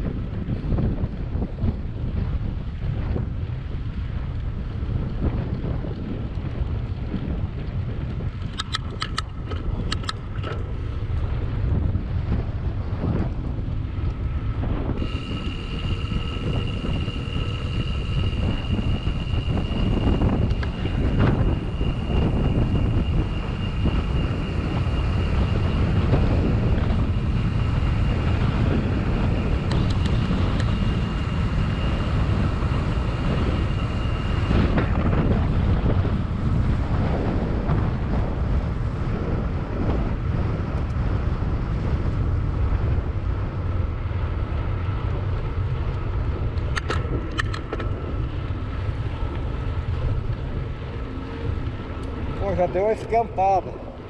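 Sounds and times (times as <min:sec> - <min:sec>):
bicycle road noise: 0:00.0 - 0:54.0
wind buffeting microphone: 0:00.0 - 0:54.0
faint high whine: 0:14.2 - 0:37.6, 0:43.1 - 0:54.0.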